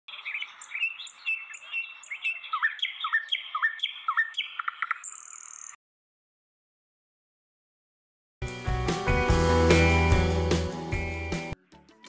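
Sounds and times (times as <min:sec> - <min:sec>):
birds chirping and squawking: 0:00.1 - 0:05.8.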